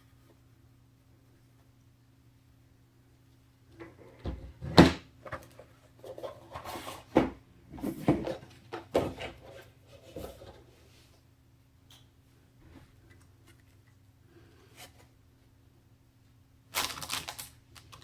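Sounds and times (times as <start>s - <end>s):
packaging rustling: 16.7s - 18.0s.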